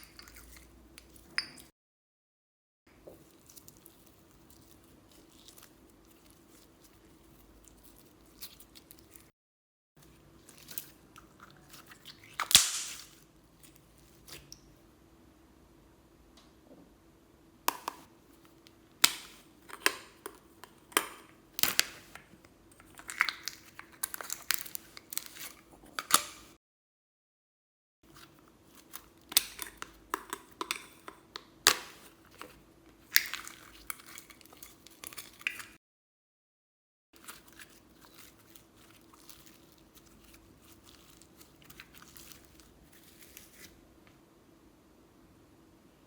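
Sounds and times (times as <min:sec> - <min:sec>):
slime popping and crackling: 0:12.1 - 0:13.2.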